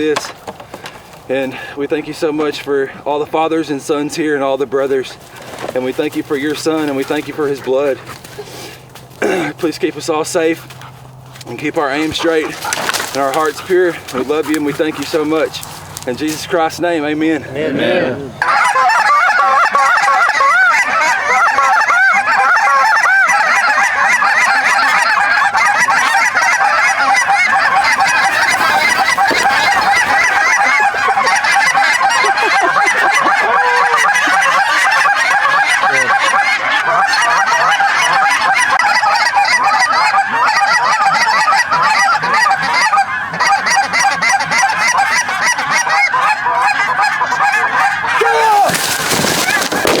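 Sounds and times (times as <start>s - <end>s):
geese honking: 0.0s - 50.0s.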